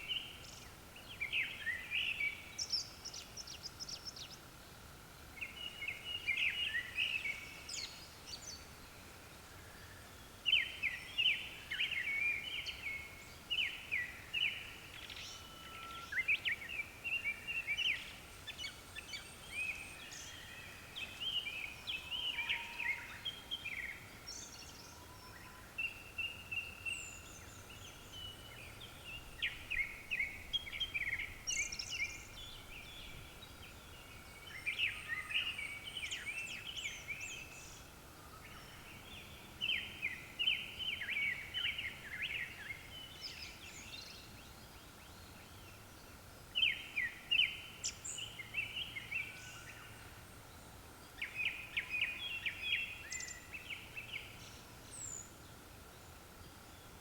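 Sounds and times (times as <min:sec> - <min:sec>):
thrushes singing: 0:19.1 - 0:24.0.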